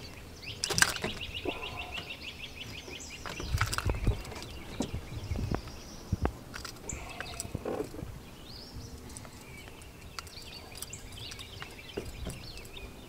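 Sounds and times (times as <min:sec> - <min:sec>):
songbirds chirping and singing: 0:00.0 - 0:13.0
light clicks and knocks: 0:09.0 - 0:12.8.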